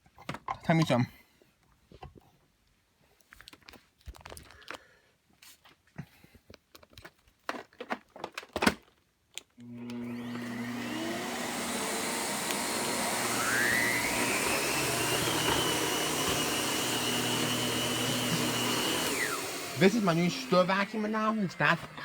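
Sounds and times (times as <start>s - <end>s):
vacuum cleaner motor whine: 9.6s - 22.0s.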